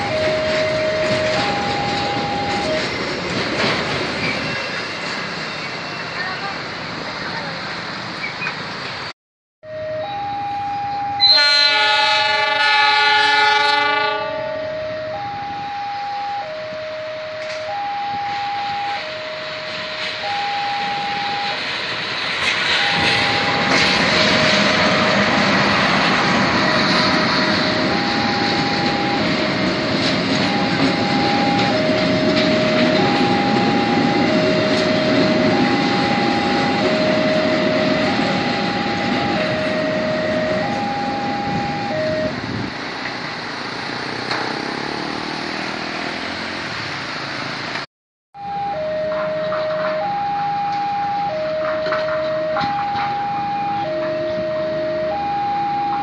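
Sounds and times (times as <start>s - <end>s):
two-tone level-crossing alarm: 0.0s - 3.1s, 9.6s - 42.6s, 48.4s - 56.0s
locomotive engine and wheels rumbling: 0.0s - 56.0s
locomotive horn: 9.6s - 21.7s, 22.4s - 42.6s, 48.4s - 56.0s.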